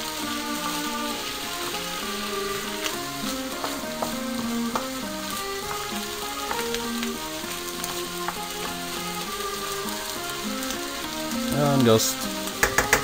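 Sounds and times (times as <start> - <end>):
background music with melody: 0.0 - 13.0
food sizzling in a frying pan: 0.0 - 13.0
utensil clicking against pan: 12.5 - 13.0.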